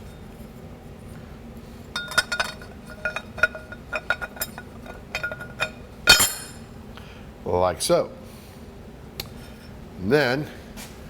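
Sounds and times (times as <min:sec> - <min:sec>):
light metallic clinks: 0:02.0 - 0:06.6.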